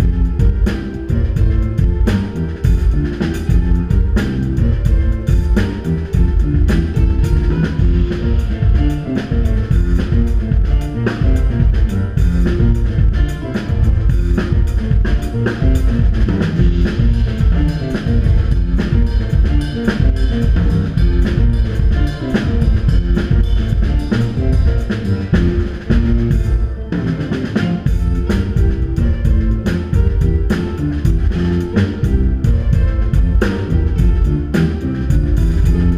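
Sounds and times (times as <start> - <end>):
bass guitar: 0.0 - 35.9
drum kit playing a steady beat: 0.0 - 35.9
keyboard: 0.0 - 35.9.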